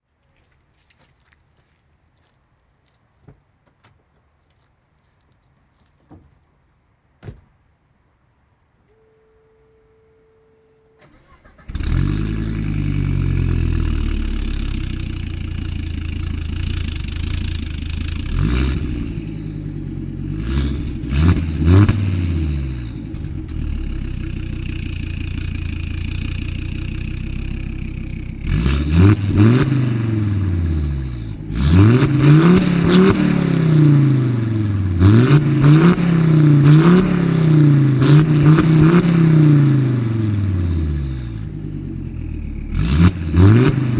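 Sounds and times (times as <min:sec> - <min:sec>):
car engine starting and revving: 0:10.8 - 0:43.9.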